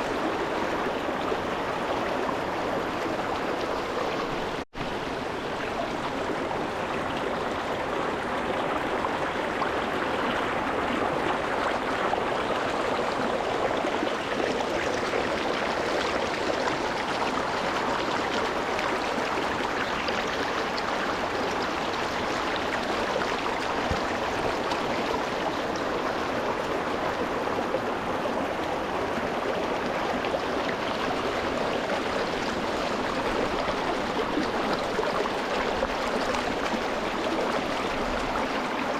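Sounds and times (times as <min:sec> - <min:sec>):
water rushing over rocks: 0:00.0 - 0:38.9.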